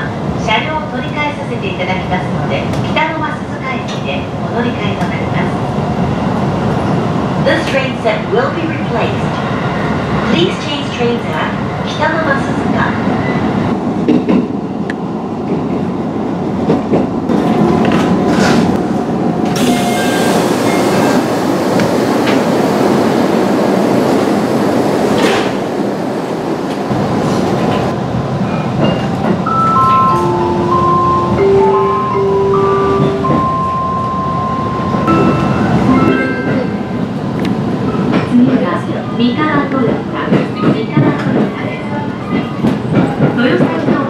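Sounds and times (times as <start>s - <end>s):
electric train rumble and hiss: 17.3s - 28.8s
electronic chime melody: 29.5s - 37.0s.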